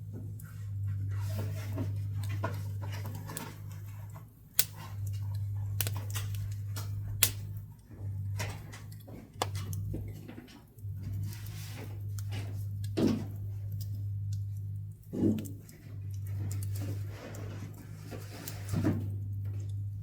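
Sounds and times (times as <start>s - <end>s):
wood crackling in a stove: 0.0s - 20.0s
loud sharp pops: 7.2s - 7.4s.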